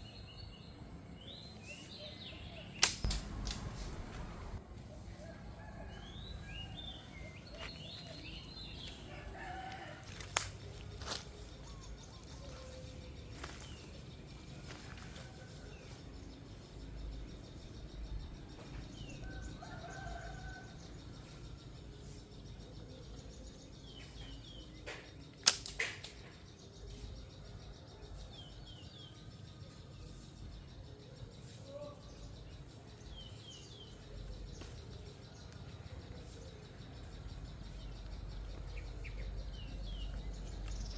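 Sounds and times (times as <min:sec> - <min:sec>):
small birds chirping: 0:00.0 - 0:40.9
sharp snaps: 0:02.8 - 0:04.6, 0:10.2 - 0:11.3, 0:24.9 - 0:26.4.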